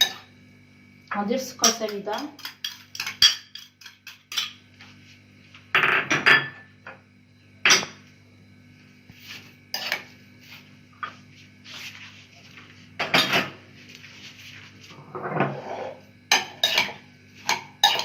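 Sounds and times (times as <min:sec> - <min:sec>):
metal spoon clinking on a dish: 0:00.0 - 0:00.3, 0:01.6 - 0:04.6, 0:16.3 - 0:18.0.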